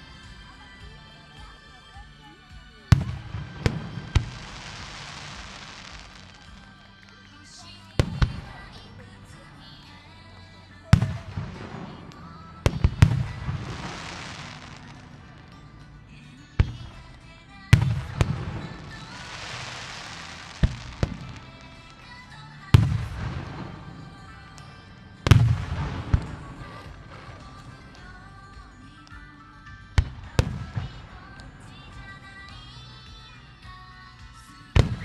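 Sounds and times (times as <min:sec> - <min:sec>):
faint music: 0:00.0 - 0:35.0
firework crackle: 0:02.6 - 0:10.0, 0:10.8 - 0:35.0
firework shells booming: 0:17.7 - 0:28.0.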